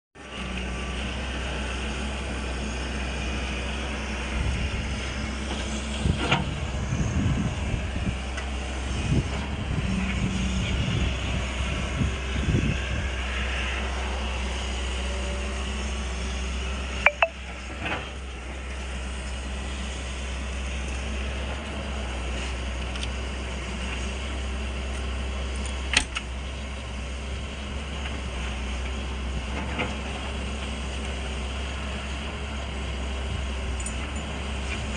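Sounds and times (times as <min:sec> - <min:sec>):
diesel engine running: 0:00.2 - 0:34.9.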